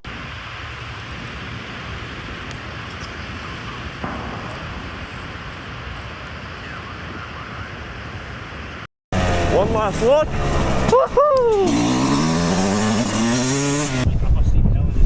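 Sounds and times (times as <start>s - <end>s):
wind noise on microphone: 13.1s - 15.0s.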